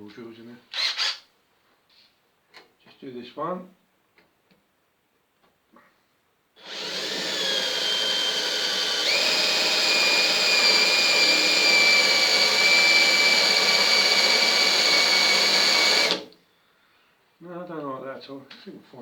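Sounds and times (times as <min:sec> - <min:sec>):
electric drill whining: 0:00.8 - 0:01.2, 0:06.6 - 0:16.3.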